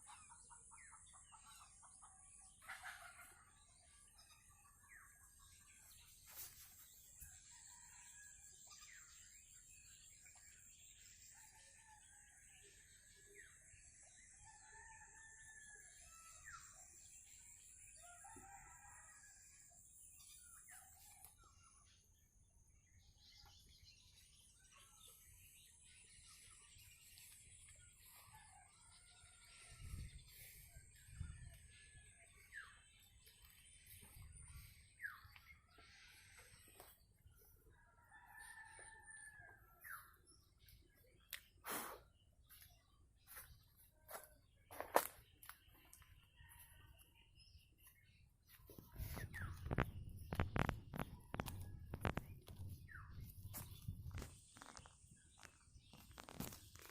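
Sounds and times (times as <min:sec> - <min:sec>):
faint rooster crowing: 0:14.3 - 0:16.8, 0:18.0 - 0:19.8, 0:27.6 - 0:40.3, 0:45.9 - 0:53.9
birds chirping: 0:23.5 - 0:56.9.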